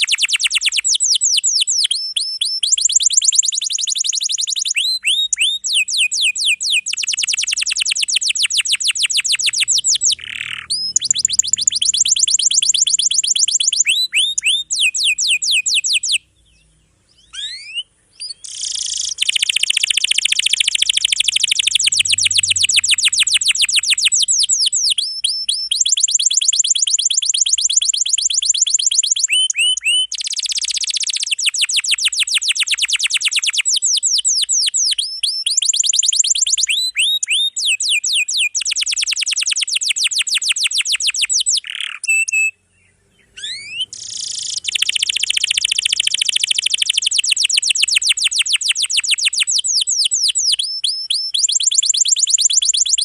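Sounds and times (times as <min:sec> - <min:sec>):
canary singing: 0:00.0 - 0:53.0
sliding whistles: 0:00.2 - 0:16.1, 0:17.3 - 0:27.7, 0:43.4 - 0:53.0.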